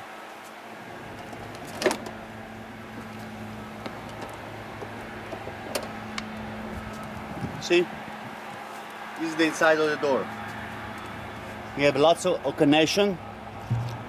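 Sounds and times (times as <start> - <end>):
steady low hum: 13.2 - 14.0.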